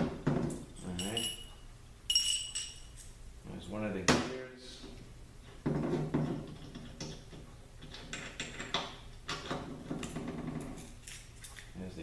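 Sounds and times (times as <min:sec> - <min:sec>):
metal parts knocking and clinking: 0:00.5 - 0:01.5, 0:02.1 - 0:03.0.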